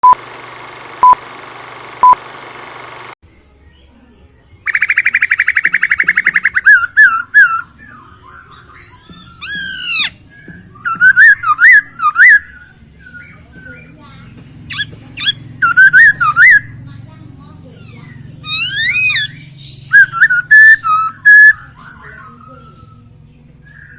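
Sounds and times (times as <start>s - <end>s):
short beeps: 0.0s - 0.2s
bird singing trills and whistles: 4.6s - 14.0s, 14.7s - 16.7s, 17.8s - 23.9s.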